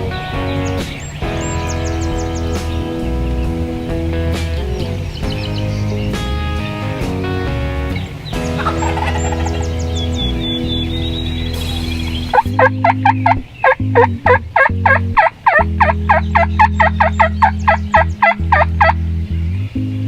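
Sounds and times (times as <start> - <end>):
background music with bass line: 0.0 - 20.0
turkey gobbling: 7.9 - 19.0.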